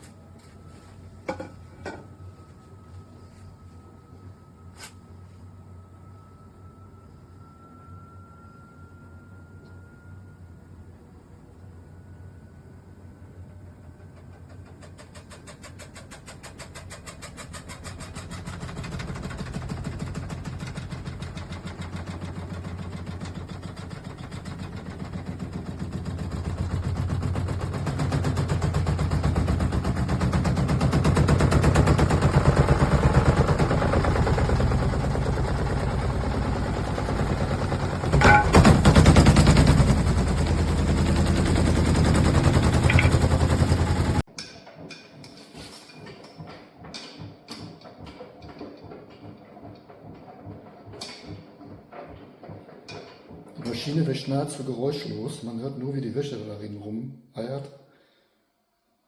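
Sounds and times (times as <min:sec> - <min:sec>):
washing machine tumbling laundry: 0:13.4 - 0:55.4
sharp clatter: 0:38.0 - 0:53.9.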